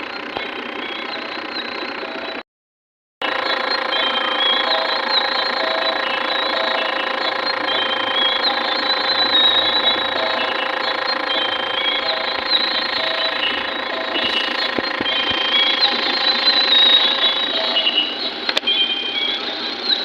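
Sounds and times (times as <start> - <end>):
small electric motor whirring: 6.3 - 18.4
short high beeps: 7.7 - 19.2.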